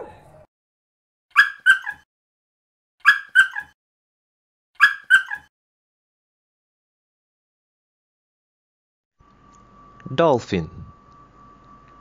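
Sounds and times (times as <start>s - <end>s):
dog yapping: 1.3s - 2.0s, 3.0s - 3.8s, 4.8s - 5.5s.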